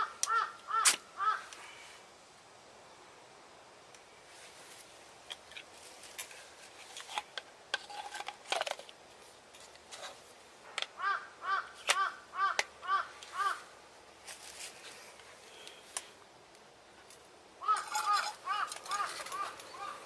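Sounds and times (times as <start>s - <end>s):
crow cawing: 0.0s - 1.6s, 11.0s - 13.7s, 17.6s - 20.0s.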